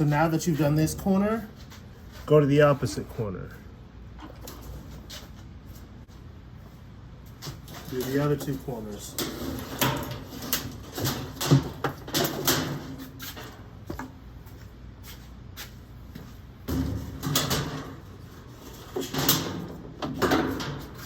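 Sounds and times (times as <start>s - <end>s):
metal rods clicking and rattling: 7.7s - 13.0s.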